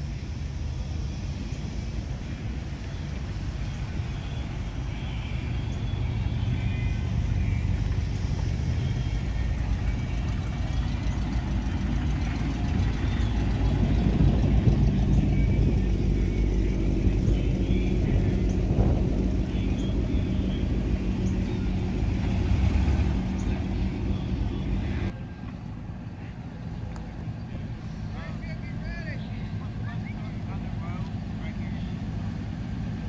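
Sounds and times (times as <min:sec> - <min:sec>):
car engine pulling close: 0:00.0 - 0:33.0
car engines rumbling low: 0:00.0 - 0:33.0.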